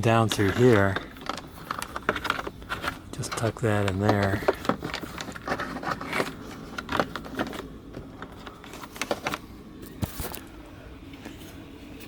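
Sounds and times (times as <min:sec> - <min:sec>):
plastic trim clicks and scrapes: 0:00.3 - 0:09.4.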